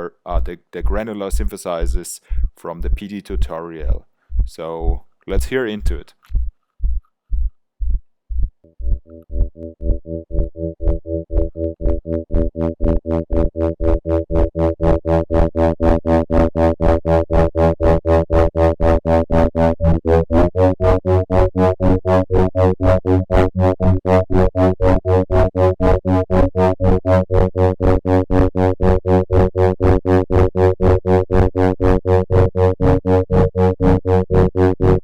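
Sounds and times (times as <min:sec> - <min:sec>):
pulsing synthesizer drone: 0:08.7 - 0:35.0.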